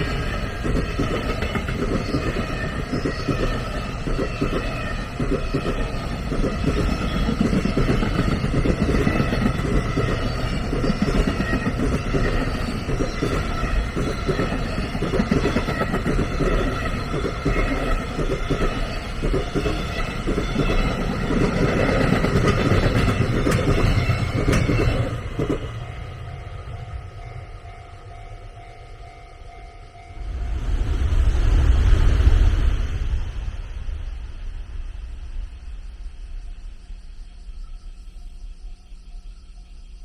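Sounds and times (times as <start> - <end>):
train passing: 0.0 - 40.0
loud rush of noise: 30.2 - 36.8.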